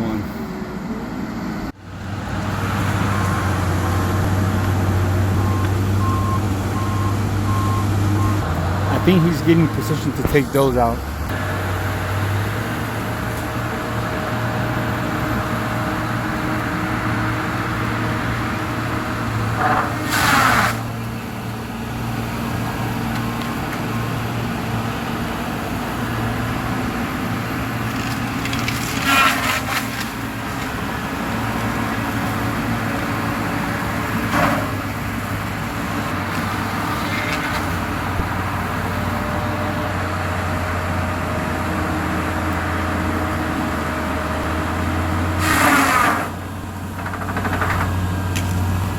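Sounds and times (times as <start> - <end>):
logging machine engine running: 0.0 - 48.9.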